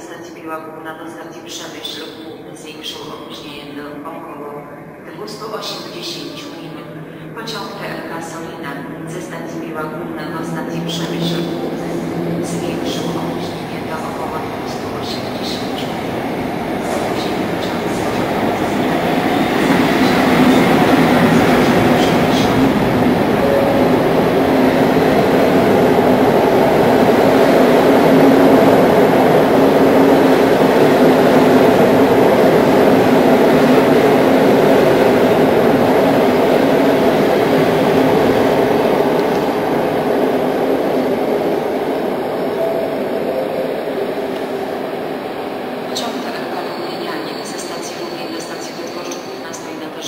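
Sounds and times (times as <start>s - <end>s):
train wheels rumbling on rails: 9.9s - 42.5s.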